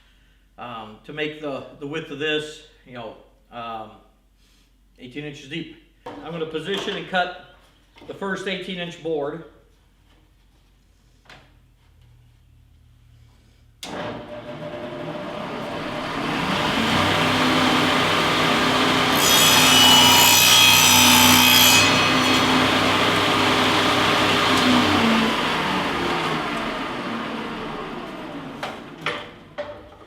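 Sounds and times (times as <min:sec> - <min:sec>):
table saw motor running: 0:13.9 - 0:29.6
saw blade cutting wood: 0:15.6 - 0:26.8.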